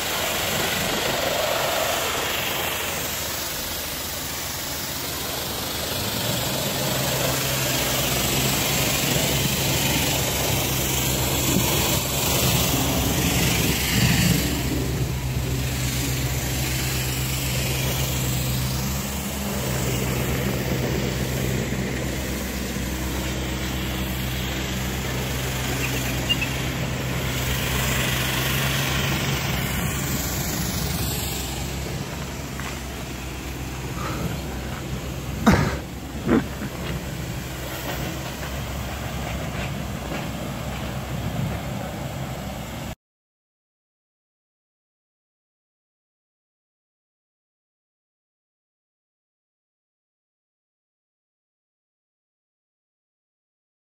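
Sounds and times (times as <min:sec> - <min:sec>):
car engine running: 0:00.0 - 0:42.8.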